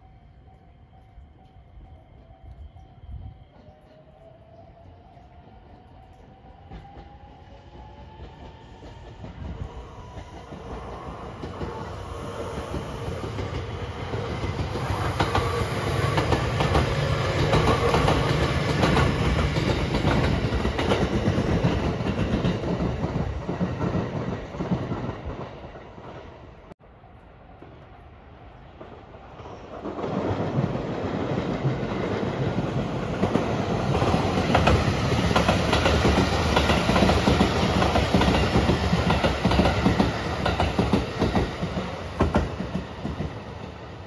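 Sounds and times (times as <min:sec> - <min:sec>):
electric train whine: 0:00.0 - 0:44.0
train wheels clacking over rail joints: 0:29.7 - 0:43.4.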